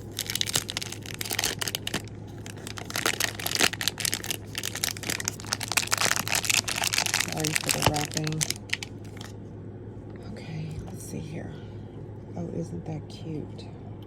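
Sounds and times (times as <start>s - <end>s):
plastic wrap crinkling: 0.0s - 9.4s.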